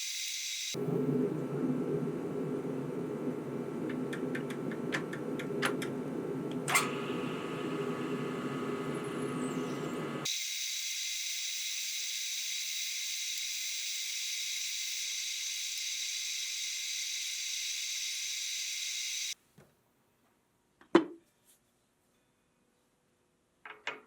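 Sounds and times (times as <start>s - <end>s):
machine whining and hissing: 0.0s - 3.8s, 6.6s - 19.4s.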